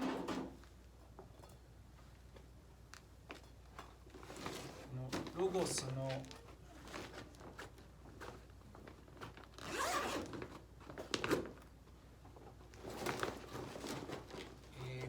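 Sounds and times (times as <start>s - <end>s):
small clicks and rustles: 0.6s - 9.6s
zipper rasping: 9.6s - 10.3s.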